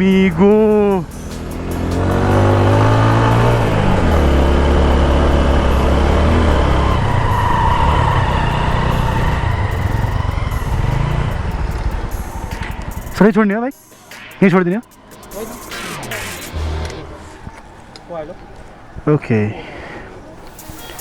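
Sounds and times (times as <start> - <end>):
motorcycle engine running: 0.0 - 13.3
wind and road noise hiss: 0.0 - 15.7, 16.8 - 21.0.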